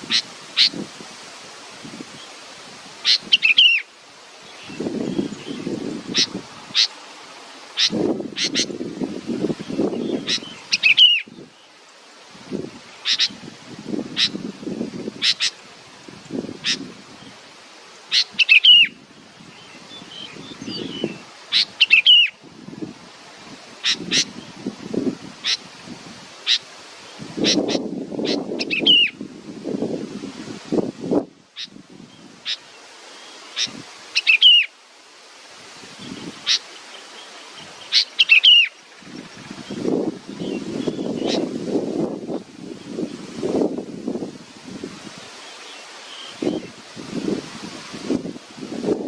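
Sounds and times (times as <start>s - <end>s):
wind rumble on microphone: 4.6s - 6.8s, 7.8s - 11.5s, 12.4s - 17.4s, 18.9s - 21.8s, 22.4s - 26.4s, 27.1s - 32.5s, 39.0s - 45.4s, 46.3s - 49.0s
bird chirping: 37.8s - 39.8s.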